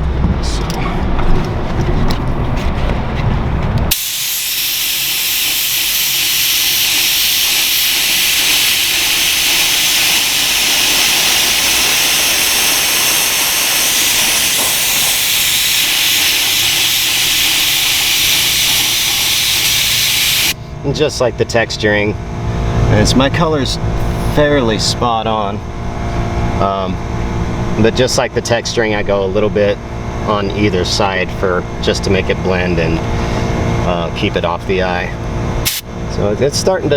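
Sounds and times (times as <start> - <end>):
spray gun hissing: 3.9 - 20.6.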